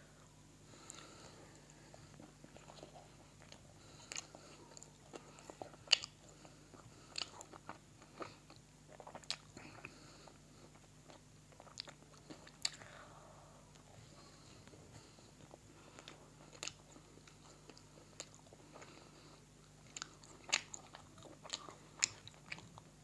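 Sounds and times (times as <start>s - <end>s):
person chewing crunchy food: 0.8s - 13.1s, 13.7s - 23.0s.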